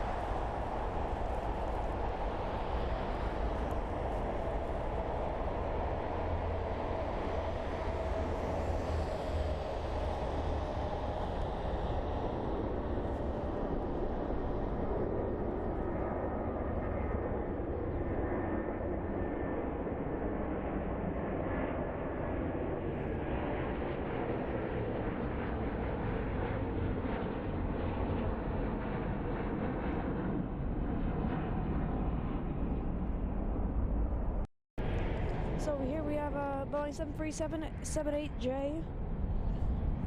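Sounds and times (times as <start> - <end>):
jet airliner engines rumbling: 0.0 - 40.0.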